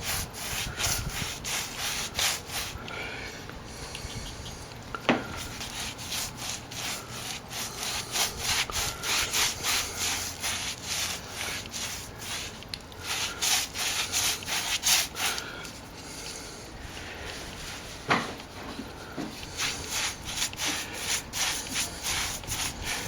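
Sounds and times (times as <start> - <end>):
scratchy rubbing on plaster wall: 0.0 - 2.9, 5.3 - 16.0, 19.3 - 23.0.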